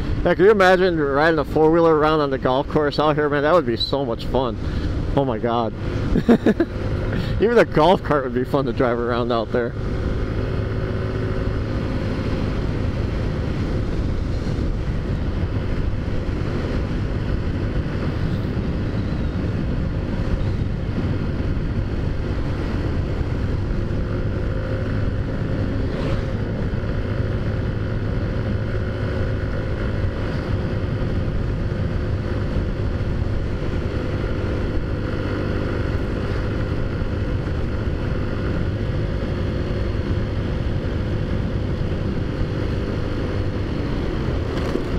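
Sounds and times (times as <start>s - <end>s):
wind on microphone: 9.8s - 44.9s.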